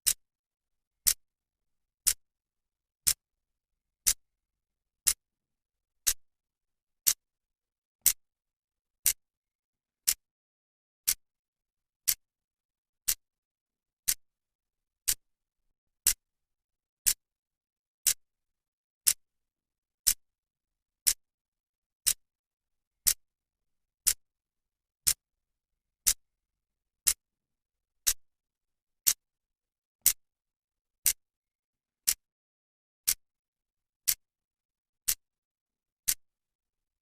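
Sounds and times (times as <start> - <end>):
clock ticking: 10.0 - 10.2, 15.0 - 15.2.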